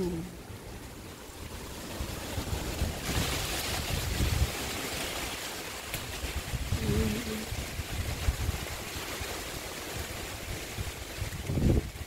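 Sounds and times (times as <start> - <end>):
wind buffeting microphone: 0.0 - 5.2, 5.8 - 12.0
leaves rustling in wind: 0.0 - 12.0.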